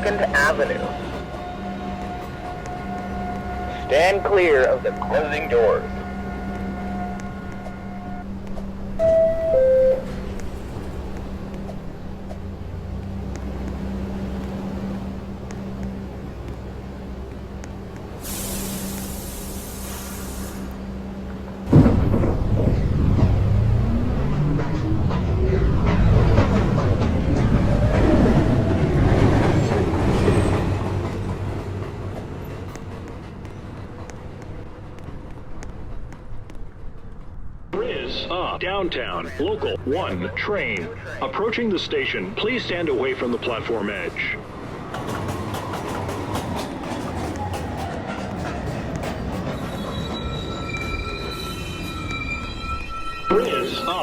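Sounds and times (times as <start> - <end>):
train doors closing: 0.0 - 36.5, 37.8 - 54.0
train rumble and hum: 0.0 - 54.0
two-tone door chime: 9.0 - 10.2
light ticks: 10.3 - 18.2.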